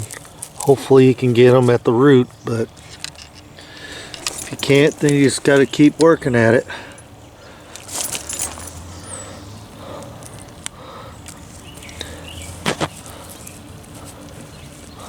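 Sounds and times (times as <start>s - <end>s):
leaves and stems rustling: 0.0s - 15.0s
stems snapping: 10.1s - 15.0s.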